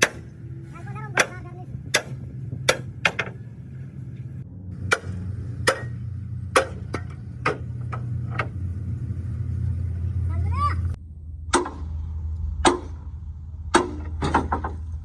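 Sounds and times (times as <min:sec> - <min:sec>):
hammer striking metal: 0:00.0 - 0:00.4, 0:01.1 - 0:03.4, 0:04.8 - 0:08.6, 0:11.5 - 0:11.9, 0:12.6 - 0:13.0, 0:13.7 - 0:14.8
steady low hum: 0:00.0 - 0:15.0.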